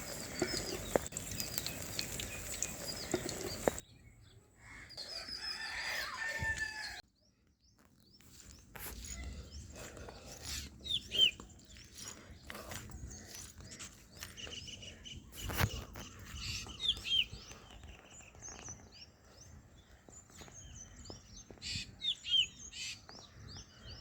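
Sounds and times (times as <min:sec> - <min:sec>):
hens clucking: 0:00.0 - 0:03.8
small birds chirping: 0:00.0 - 0:24.0
rooster crowing: 0:05.0 - 0:07.0.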